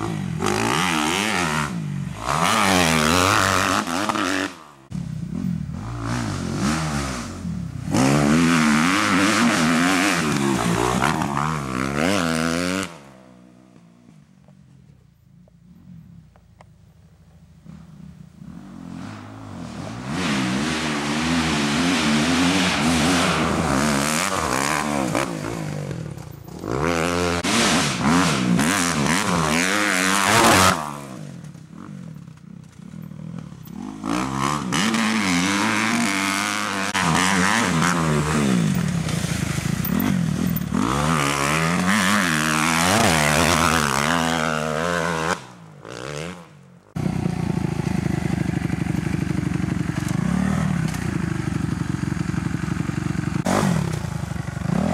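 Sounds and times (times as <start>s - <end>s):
motocross bike revving: 0.0s - 14.2s, 17.6s - 54.9s.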